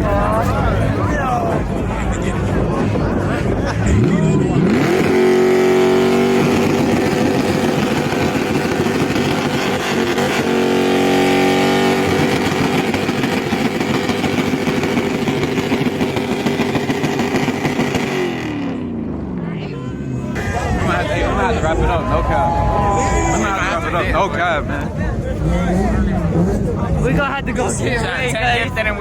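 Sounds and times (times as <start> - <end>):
car engine on rev limiter: 3.8 - 19.3.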